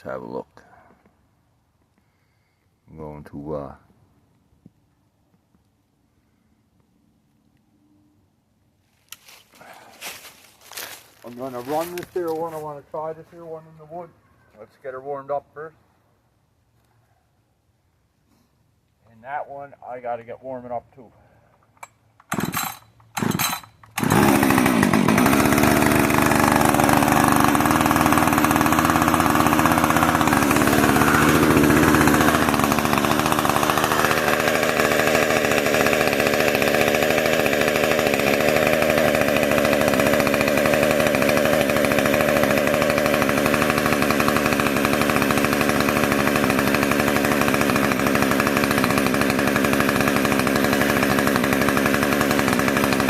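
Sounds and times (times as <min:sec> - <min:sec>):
chainsaw starting and running: 0:09.1 - 0:13.8, 0:21.6 - 0:53.0.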